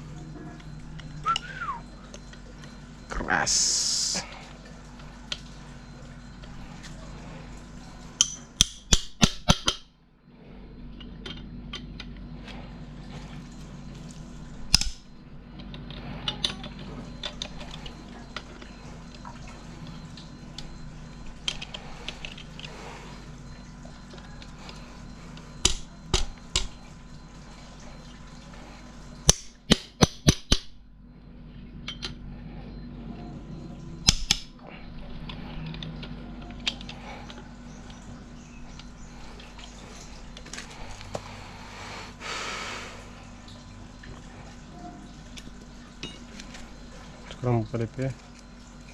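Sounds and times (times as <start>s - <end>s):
steady low hum: 0.0s - 48.9s
sharp metal clicks of hand tools: 34.1s - 34.5s.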